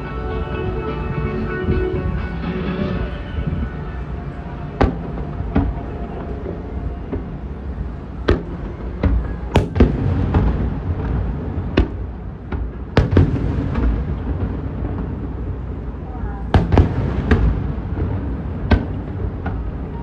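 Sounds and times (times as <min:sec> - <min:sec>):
fireworks bangs: 0:09.6 - 0:10.6.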